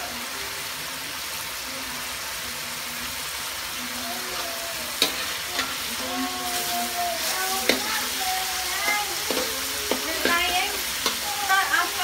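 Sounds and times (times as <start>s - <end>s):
meat sizzling in hot oil: 0.0s - 12.0s
spatula scraping a pan: 4.4s - 12.0s.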